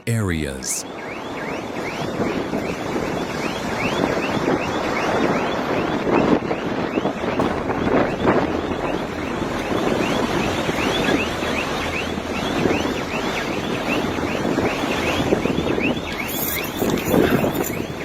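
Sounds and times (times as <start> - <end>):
strong wind buffeting microphone: 1.6 - 18.0
wildfire rushing: 2.1 - 18.0.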